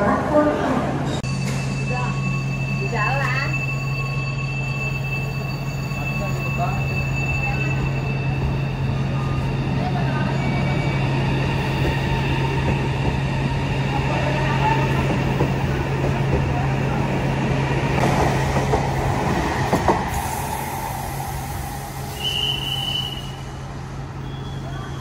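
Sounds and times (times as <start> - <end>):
train rumble inside carriage: 5.4 - 25.0.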